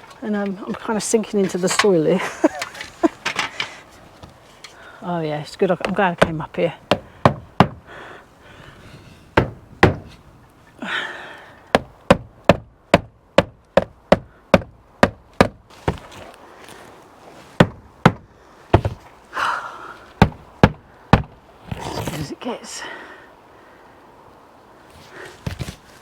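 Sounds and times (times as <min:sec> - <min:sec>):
hammer striking roof tacks: 0:05.8 - 0:07.8, 0:09.4 - 0:10.2, 0:11.7 - 0:16.1, 0:17.6 - 0:19.0, 0:20.2 - 0:21.4.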